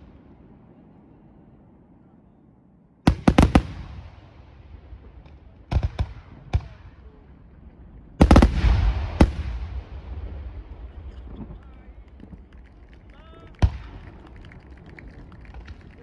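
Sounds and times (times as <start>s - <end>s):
rolling echo: 0.0s - 15.8s
firework shells bursting: 3.1s - 4.4s, 8.2s - 12.6s.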